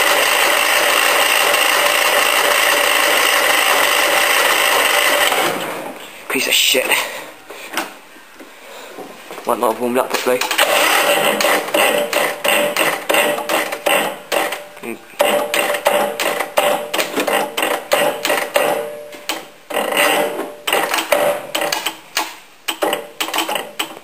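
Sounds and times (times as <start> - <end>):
mechanical clicking and clanking: 10.2 - 14.6, 15.2 - 24.0.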